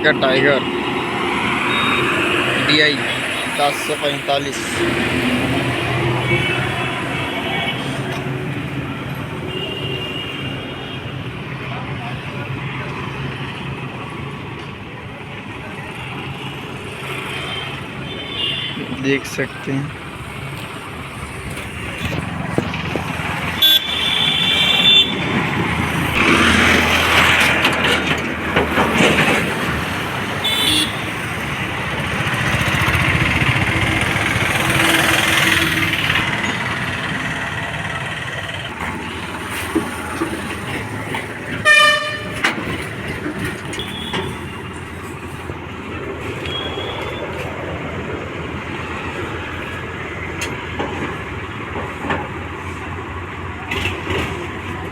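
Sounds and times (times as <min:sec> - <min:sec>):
engines and road traffic rumble: 0:00.0 - 0:54.9
vehicle horns: 0:01.6 - 0:08.2, 0:09.2 - 0:11.2, 0:17.2 - 0:19.0, 0:23.4 - 0:25.4, 0:30.3 - 0:31.6, 0:41.5 - 0:44.8, 0:46.4 - 0:47.4.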